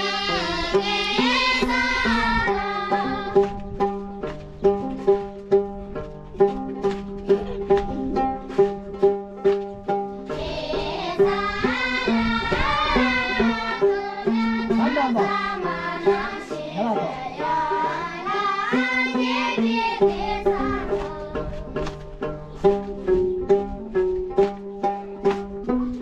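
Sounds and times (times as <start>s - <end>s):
plucked strings: 0.0s - 26.0s.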